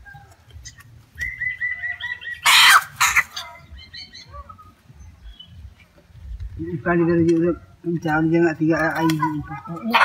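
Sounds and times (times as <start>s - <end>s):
bird trilling: 0.6s - 5.6s.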